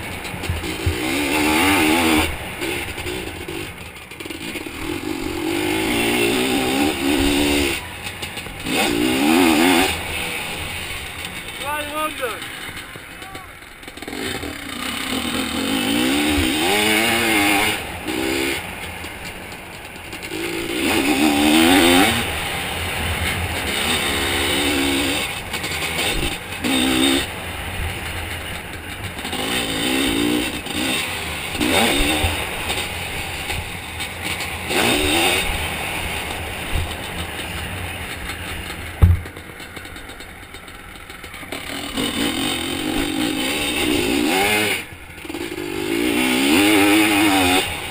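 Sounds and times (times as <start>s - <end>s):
two-stroke engine revving: 0.0s - 47.9s
sharp knock: 39.0s - 39.4s.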